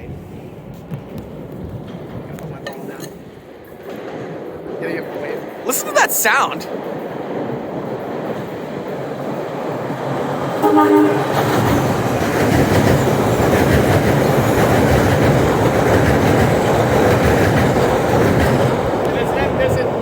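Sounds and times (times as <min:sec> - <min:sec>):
subway train rumbling: 0:00.0 - 0:20.0
short horn blast: 0:10.6 - 0:11.6.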